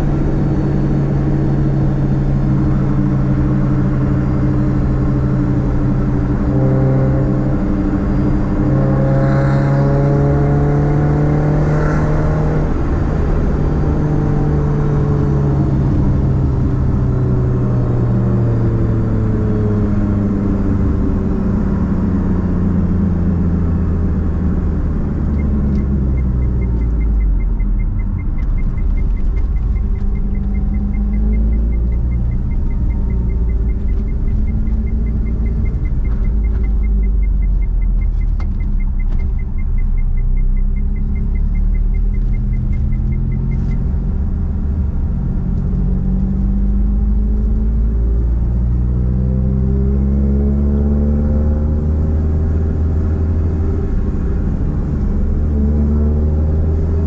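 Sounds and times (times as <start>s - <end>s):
car engine droning: 0.0s - 57.0s
light regular ticking: 25.4s - 43.9s.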